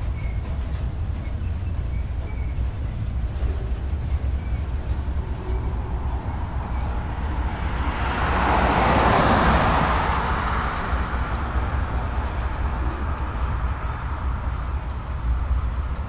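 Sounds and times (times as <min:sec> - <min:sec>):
freight train rumbling past: 0:00.0 - 0:16.0
rush of passing noise: 0:03.2 - 0:16.0.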